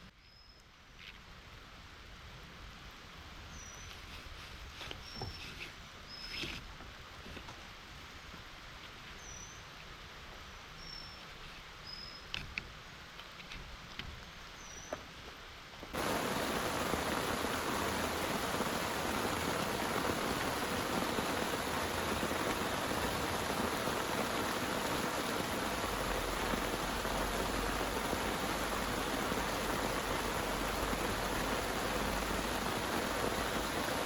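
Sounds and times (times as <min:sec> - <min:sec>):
heavy rain pouring: 0:15.9 - 0:34.0.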